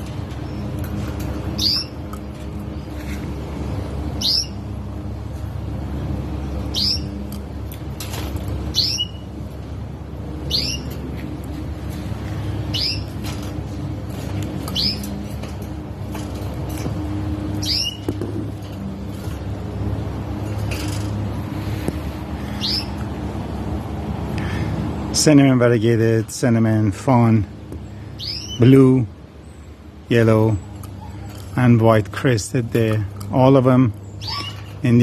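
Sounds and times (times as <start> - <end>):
sparrow chirping: 0.0 - 0.8, 1.4 - 3.2, 4.2 - 4.8, 6.6 - 7.2, 8.7 - 9.4, 10.4 - 11.0, 12.5 - 13.4, 14.4 - 15.3, 17.4 - 18.2, 22.4 - 23.1, 27.8 - 31.9, 32.8 - 35.0.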